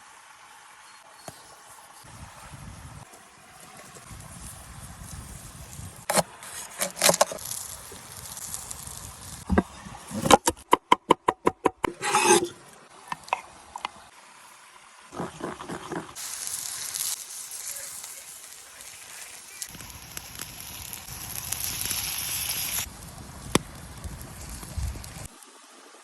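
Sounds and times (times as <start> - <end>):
meat sizzling on hot stone: 3.4 - 9.6, 15.4 - 25.3
utensils scraping: 11.8 - 12.6.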